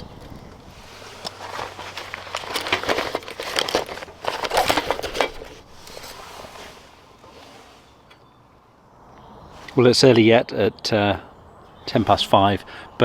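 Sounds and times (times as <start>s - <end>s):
crinkling rustle: 0.0s - 8.2s.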